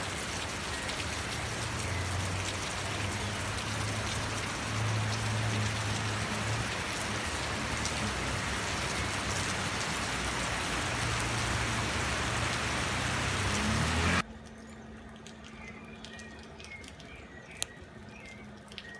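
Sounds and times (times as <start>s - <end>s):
heavy rain falling: 0.0s - 14.2s.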